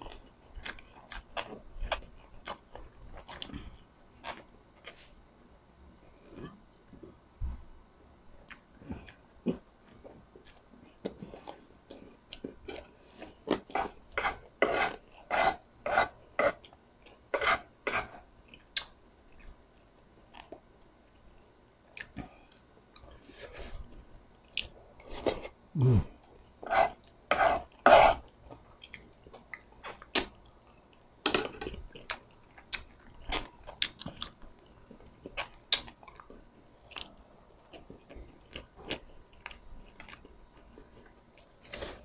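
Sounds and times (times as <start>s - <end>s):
wet chewing and smacks: 31.6s - 41.8s.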